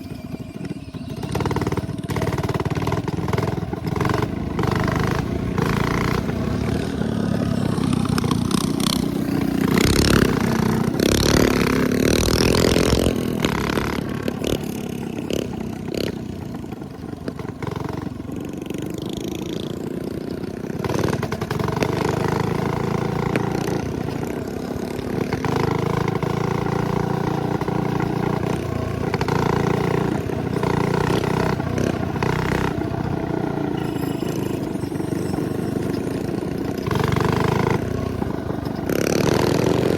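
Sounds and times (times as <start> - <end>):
minibike engines revving: 0.0 - 39.9.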